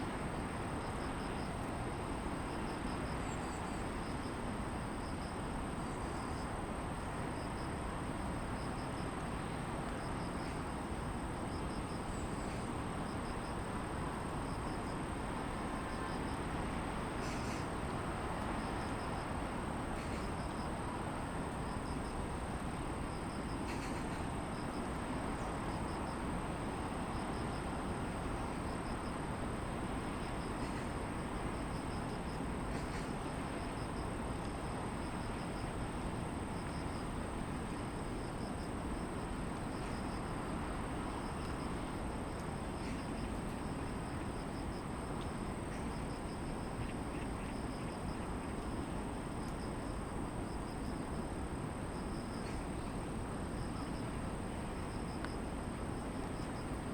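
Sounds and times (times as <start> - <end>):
insect chirping: 0.2 - 13.8, 14.4 - 20.8, 21.5 - 29.2, 29.8 - 56.9.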